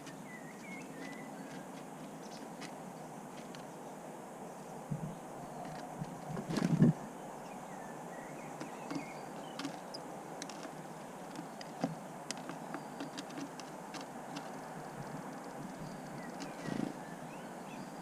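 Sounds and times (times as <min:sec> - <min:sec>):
beaks pecking on wood: 0:00.0 - 0:03.8, 0:08.3 - 0:17.2
birds knocking and rustling: 0:00.0 - 0:03.8, 0:04.9 - 0:07.0, 0:08.3 - 0:17.3.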